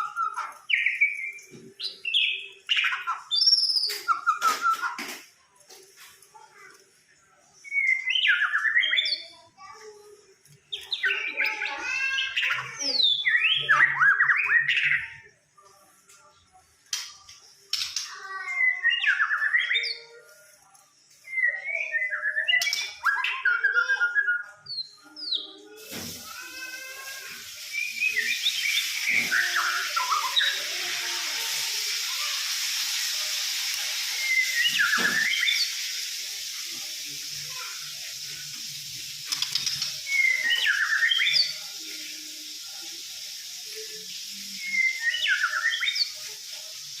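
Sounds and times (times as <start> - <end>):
bird singing whistled phrases: 0.0 - 5.0, 7.6 - 9.3, 10.8 - 15.2, 18.5 - 20.0, 21.2 - 25.5, 27.0 - 30.6, 34.0 - 37.9, 39.5 - 46.8
steady hiss: 25.7 - 47.0.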